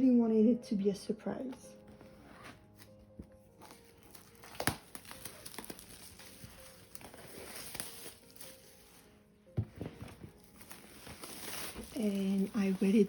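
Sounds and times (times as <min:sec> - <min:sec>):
packaging rustling and crinkling: 0:01.8 - 0:13.0.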